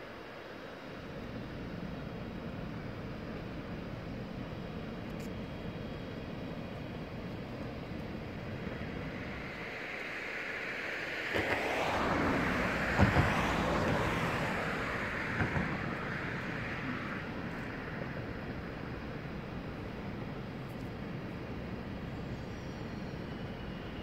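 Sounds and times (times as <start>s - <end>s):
train rushing past: 8.0s - 20.2s.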